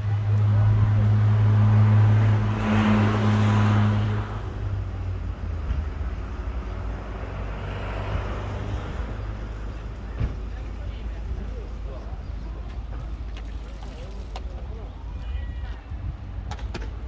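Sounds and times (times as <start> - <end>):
vehicle engine humming: 0.0 - 15.2.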